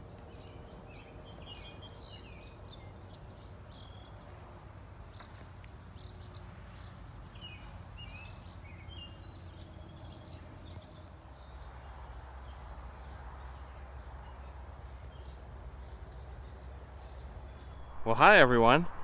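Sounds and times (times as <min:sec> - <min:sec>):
low rumble: 0:17.7 - 0:19.0.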